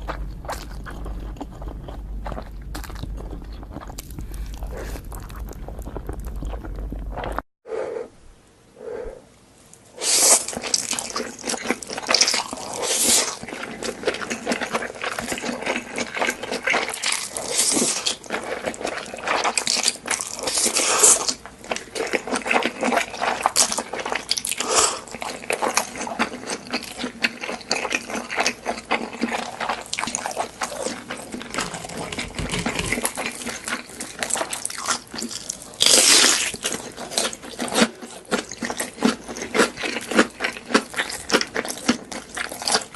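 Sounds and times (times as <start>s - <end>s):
wet chewing and mouth smacks: 0.0s - 7.4s, 10.4s - 42.9s
slurping noodles: 10.0s - 14.0s, 29.4s - 34.6s.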